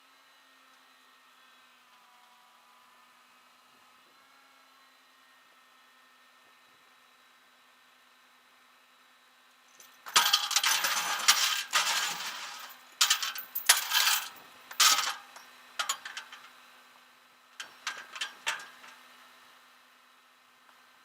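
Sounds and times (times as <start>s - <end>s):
metal clinking and rattling: 9.9s - 15.2s.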